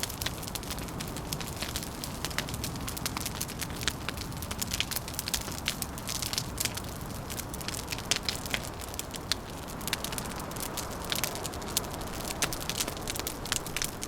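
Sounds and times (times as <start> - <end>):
wood fire crackling: 0.0 - 14.0
low rushing noise: 9.7 - 14.0.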